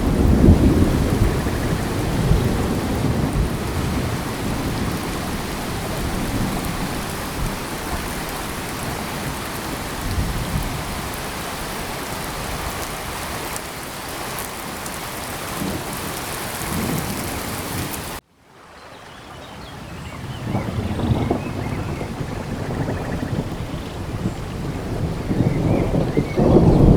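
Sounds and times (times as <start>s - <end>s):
low thunder rumbling: 0.0s - 12.7s, 20.3s - 26.9s
heavy rain falling: 0.0s - 18.2s, 20.3s - 26.9s.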